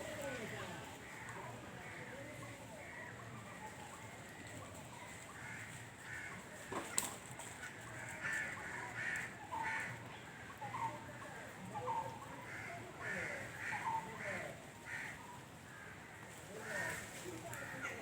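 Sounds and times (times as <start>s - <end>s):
crows cawing: 5.4s - 6.4s, 8.0s - 10.5s, 12.4s - 18.0s.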